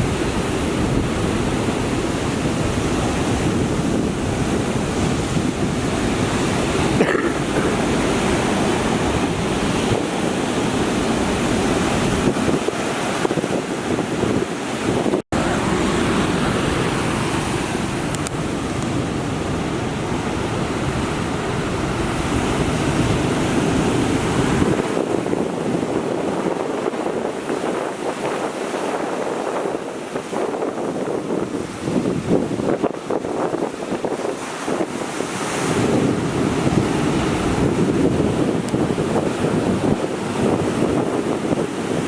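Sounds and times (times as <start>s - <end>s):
strong wind: 0.0s - 42.0s
surf breaking on shore: 0.0s - 42.0s
wind buffeting microphone: 0.0s - 42.0s.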